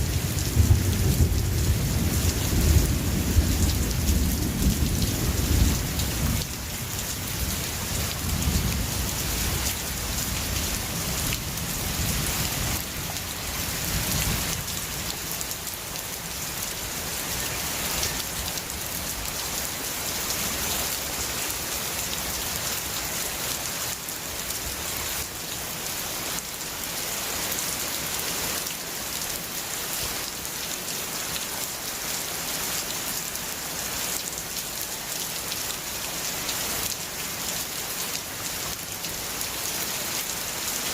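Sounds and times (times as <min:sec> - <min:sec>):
rain falling: 0:00.0 - 0:40.9
rumble of thunder: 0:00.2 - 0:06.5.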